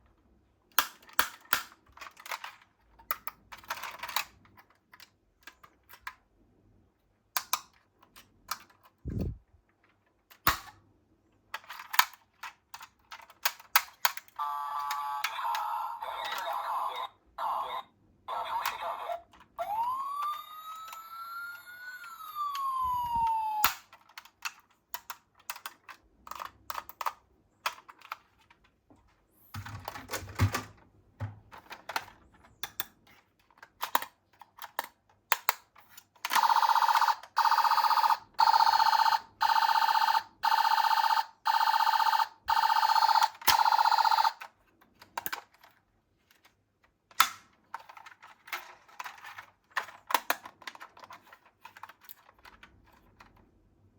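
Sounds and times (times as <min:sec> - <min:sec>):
toy cars clicking and clattering: 0:00.7 - 0:06.3, 0:11.4 - 0:16.4, 0:23.6 - 0:28.8, 0:31.5 - 0:36.6, 0:43.4 - 0:53.5
toy siren wailing: 0:14.4 - 0:23.8, 0:36.4 - 0:44.4.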